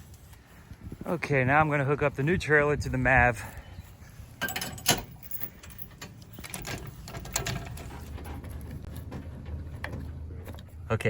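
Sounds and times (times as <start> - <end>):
trailer hitch clicks and knocks: 4.4 - 8.2.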